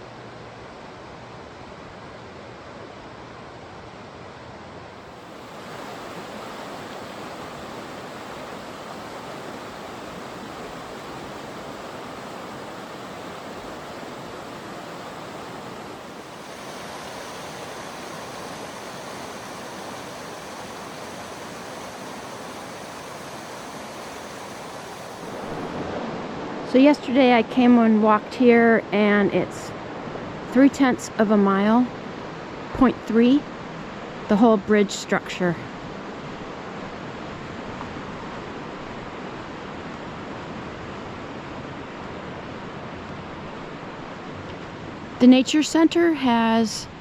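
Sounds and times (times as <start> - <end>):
river water rushing: 0.1 - 26.8.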